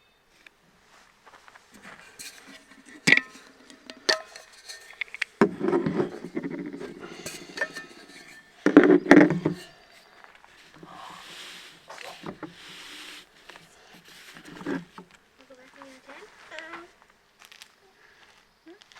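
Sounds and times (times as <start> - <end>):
rubbing and clatter: 1.6 - 15.2
coffee gear clinking and rattling: 1.7 - 12.6.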